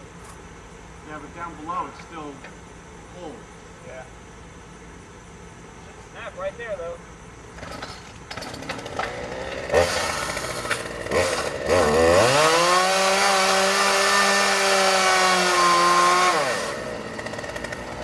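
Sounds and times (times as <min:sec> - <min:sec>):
engine revving: 0:07.6 - 0:18.0.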